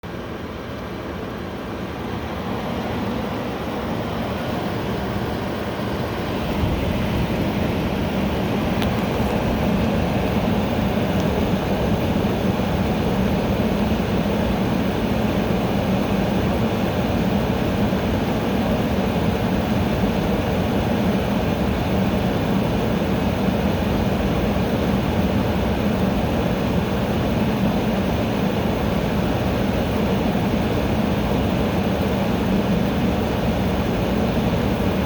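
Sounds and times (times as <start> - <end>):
air conditioner running: 0.0 - 35.0.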